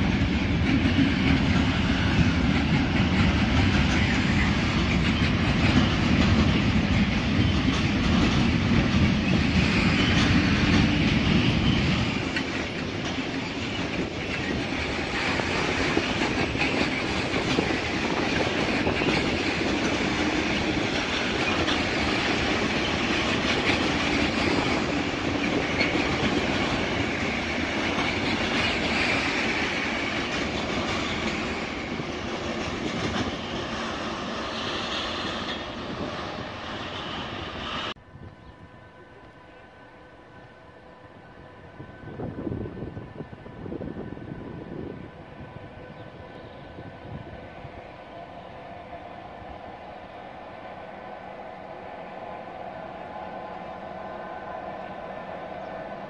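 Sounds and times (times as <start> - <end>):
freight train wheels on rail: 0.0 - 56.0.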